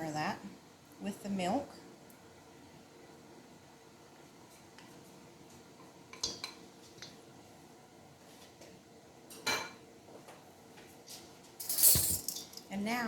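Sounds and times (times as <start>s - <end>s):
bowl and utensil clinking: 11.6s - 12.6s.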